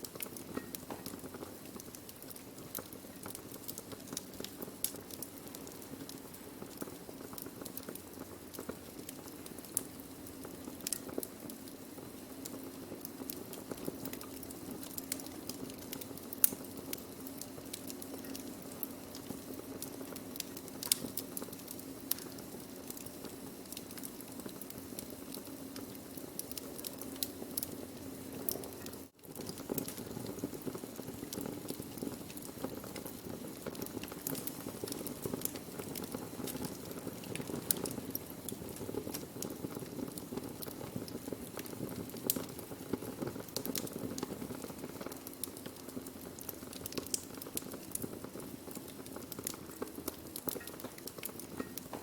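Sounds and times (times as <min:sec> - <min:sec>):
burning wood crackling: 0:00.0 - 0:52.0.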